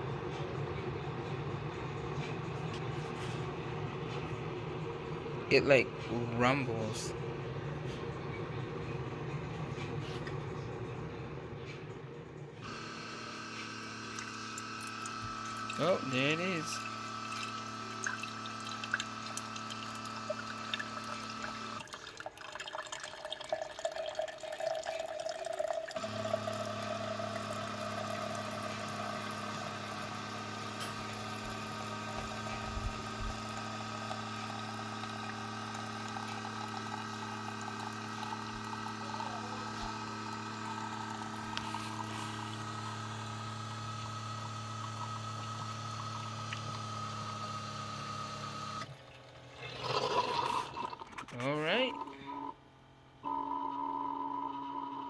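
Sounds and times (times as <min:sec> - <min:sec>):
coffee maker pump humming: 0:00.0 - 0:55.0
water pouring into cup: 0:12.6 - 0:52.2
coffee maker spluttering: 0:12.6 - 0:52.6.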